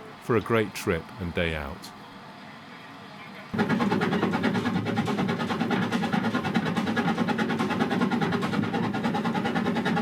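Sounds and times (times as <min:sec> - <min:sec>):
steam locomotive exhaust beating: 0:03.6 - 0:10.0.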